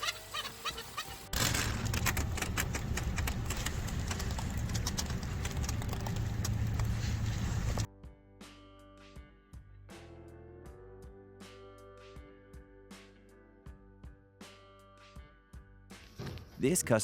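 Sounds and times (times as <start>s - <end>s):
engine with rapid ticking clatter: 1.4s - 7.9s.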